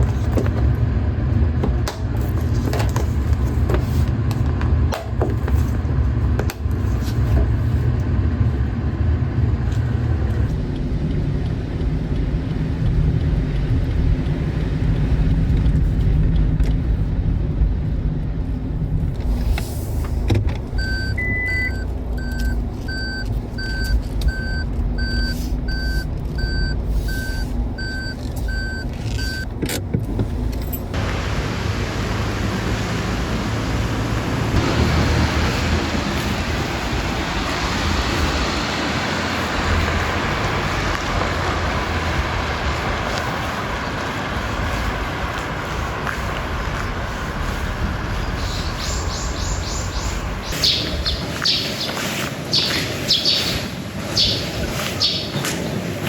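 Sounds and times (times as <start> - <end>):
car engine and road rumble: 0.0 - 56.0
electronic warning beeps: 20.8 - 29.5.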